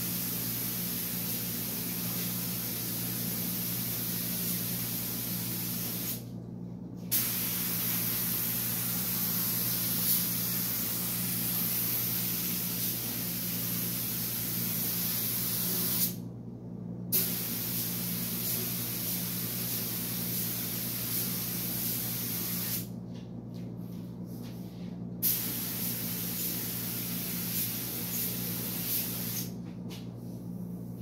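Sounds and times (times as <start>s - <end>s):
paint spray gun hissing: 7.1s - 16.2s, 17.2s - 22.9s, 25.2s - 29.5s.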